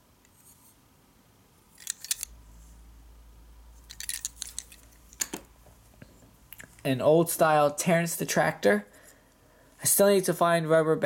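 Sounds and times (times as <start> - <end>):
faint low hum: 0.0 - 11.0
wooden toys clicking and clattering: 1.8 - 2.3, 3.9 - 5.5.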